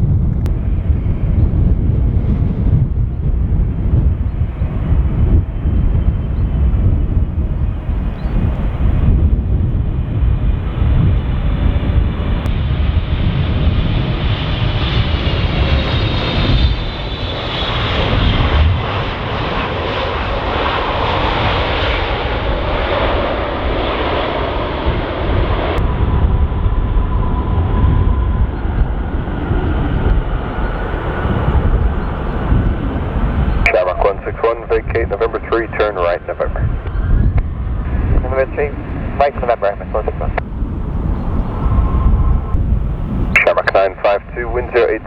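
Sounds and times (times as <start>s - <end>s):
jet engine whine: 0.0s - 45.0s
wind rumble on microphone: 0.0s - 45.0s.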